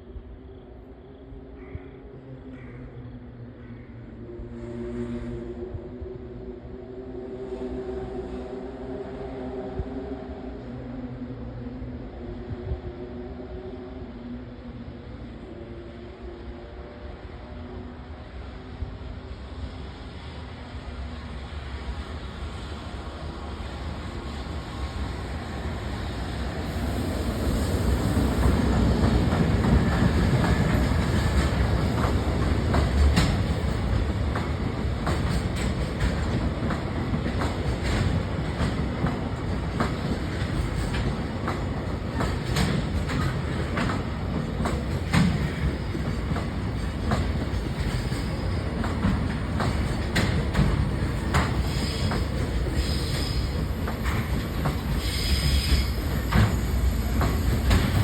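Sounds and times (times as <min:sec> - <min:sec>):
freight train rumbling past: 0:03.3 - 0:58.0
high wheel squeal: 0:51.6 - 0:58.0.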